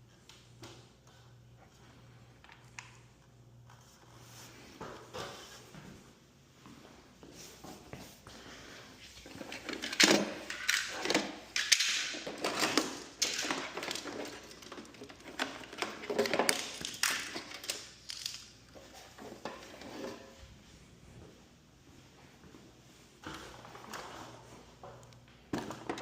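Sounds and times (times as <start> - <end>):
metal tools clattering: 9.3 - 20.3.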